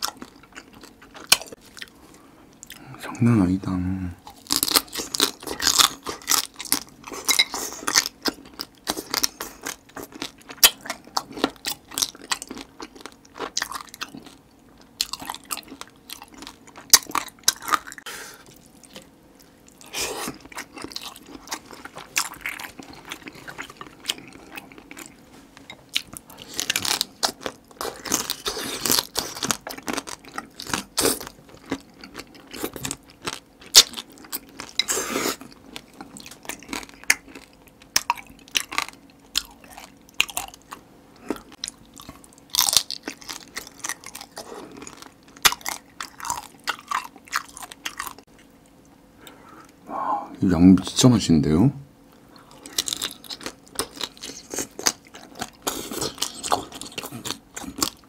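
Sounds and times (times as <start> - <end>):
chewing: 4.2 - 49.8, 52.1 - 58.0
crab shells crunching: 4.3 - 18.1, 26.0 - 48.3, 52.4 - 58.0.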